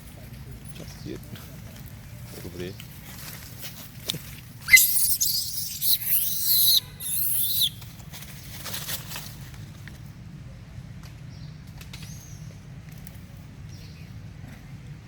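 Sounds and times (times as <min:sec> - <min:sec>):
shrill animal squealing: 0:04.7 - 0:07.8.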